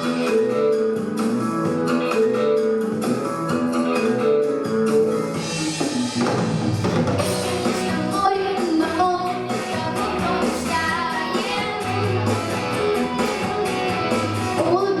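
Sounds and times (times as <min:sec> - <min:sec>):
guitar and drums backing track: 0:00.0 - 0:15.0
girl singing: 0:07.2 - 0:12.7, 0:14.5 - 0:15.0.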